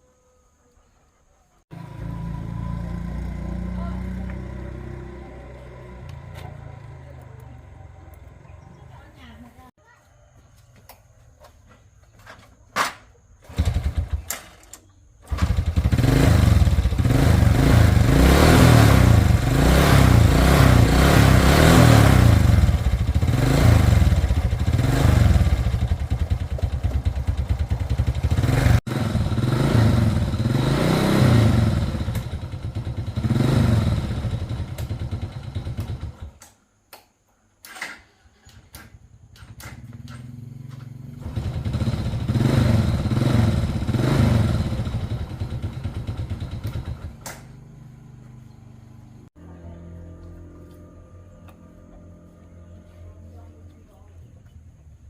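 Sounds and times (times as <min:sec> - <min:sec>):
motorcycle engine revving: 0:01.7 - 0:09.7, 0:13.4 - 0:14.5, 0:15.2 - 0:36.4, 0:39.0 - 0:55.0
motorcycle engine cranking: 0:13.4 - 0:36.5, 0:37.6 - 0:49.0.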